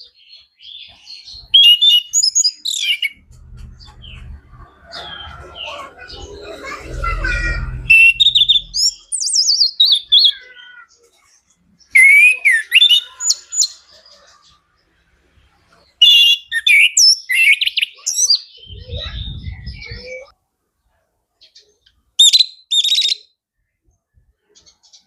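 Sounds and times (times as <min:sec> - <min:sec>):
thrush singing: 0:02.8 - 0:09.2
low rumble: 0:03.0 - 0:09.3, 0:18.7 - 0:20.1.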